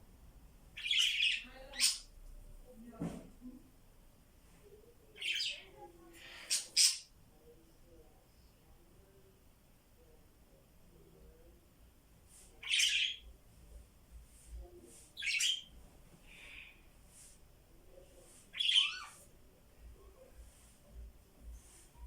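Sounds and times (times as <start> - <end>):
parrot squawking: 18.6 - 19.2.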